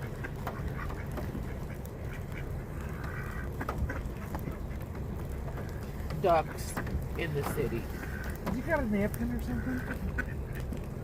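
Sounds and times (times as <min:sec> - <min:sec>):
ducks quacking: 0:00.0 - 0:11.0
steady low rumble: 0:00.0 - 0:11.0.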